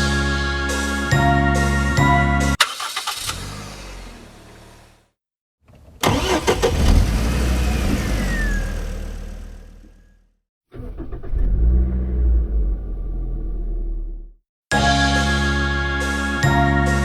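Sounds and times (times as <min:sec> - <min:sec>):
music: 0:00.0 - 0:02.6, 0:14.7 - 0:17.0
vehicle engine: 0:02.6 - 0:05.1, 0:06.0 - 0:14.3.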